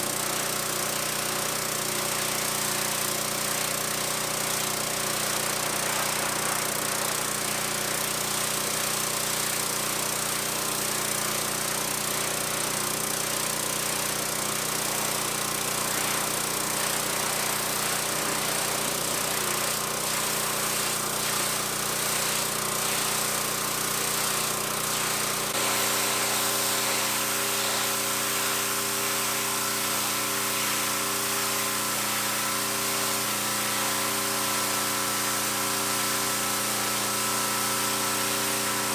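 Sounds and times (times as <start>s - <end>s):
pressure washer engine running: 0.0s - 38.9s.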